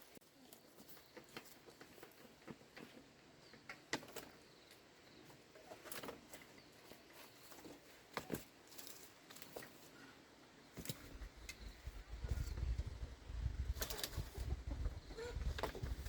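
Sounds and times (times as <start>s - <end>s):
bamboo clicks and knocks: 0.4s - 4.8s, 7.5s - 9.9s.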